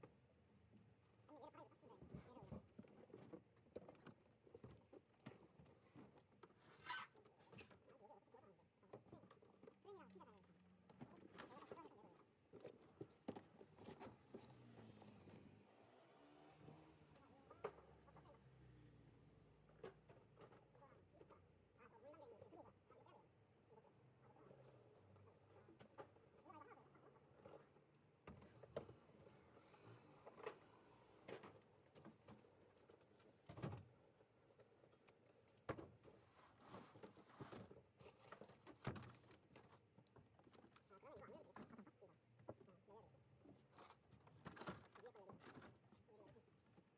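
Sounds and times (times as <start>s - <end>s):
rustling: 31.4s - 42.0s.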